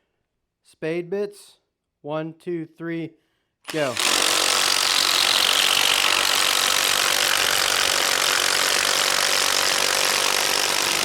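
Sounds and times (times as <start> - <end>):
impact drivers boring into wood: 3.7 - 11.0.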